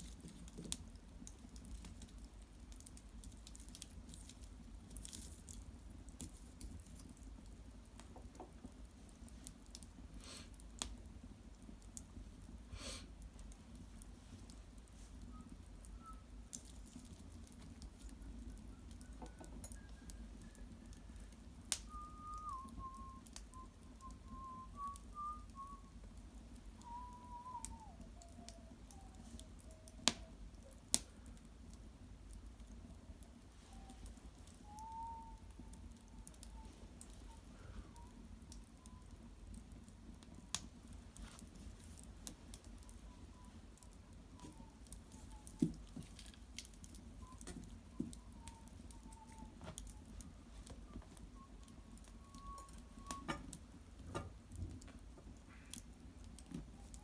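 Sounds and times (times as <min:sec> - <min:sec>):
wood fire crackling and popping: 0:00.0 - 0:57.0
thin whistle falling in pitch: 0:21.8 - 0:26.0, 0:26.8 - 0:29.2, 0:34.6 - 0:38.2, 0:48.0 - 0:49.6, 0:51.4 - 0:53.4.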